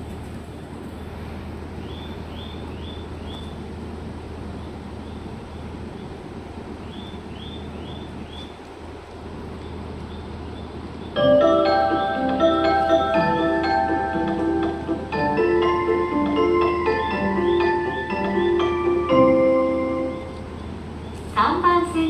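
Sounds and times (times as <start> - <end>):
small bird chirping: 1.8 - 3.6, 6.8 - 8.6
low hum: 11.2 - 21.1.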